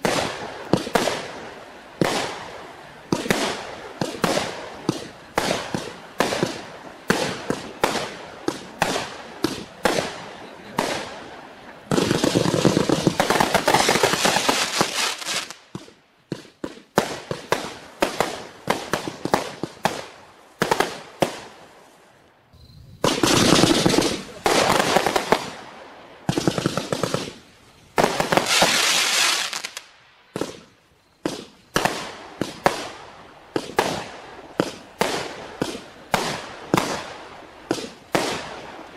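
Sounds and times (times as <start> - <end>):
fireworks sharp shots: 0.0 - 22.1, 22.8 - 38.9
rapid crackling pops: 11.9 - 21.4, 23.0 - 25.6, 26.3 - 37.1.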